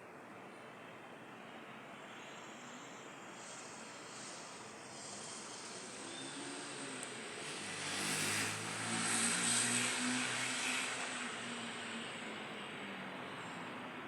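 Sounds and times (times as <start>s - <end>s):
engine passing by: 5.0s - 13.8s.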